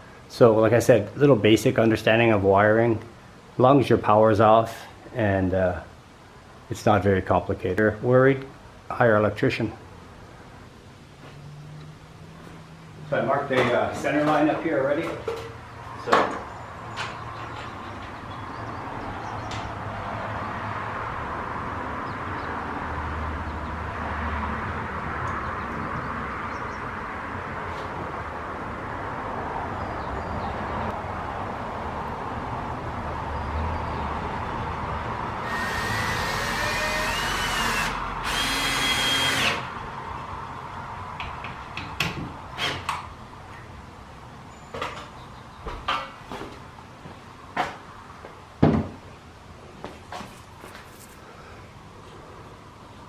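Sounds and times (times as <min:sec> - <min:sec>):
power drill whining: 0:35.4 - 0:39.8.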